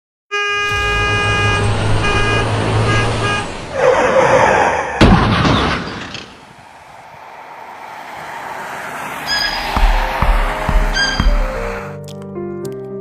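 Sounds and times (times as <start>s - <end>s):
vehicle horn short toots: 0.3s - 3.6s
sharp bang: 0.6s - 3.4s
loud rushing noise: 0.6s - 3.8s, 6.2s - 11.9s.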